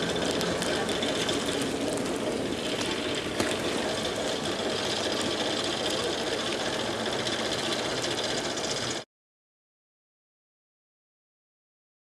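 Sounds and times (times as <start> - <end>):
locomotive mechanical clatter: 0.0 - 9.0.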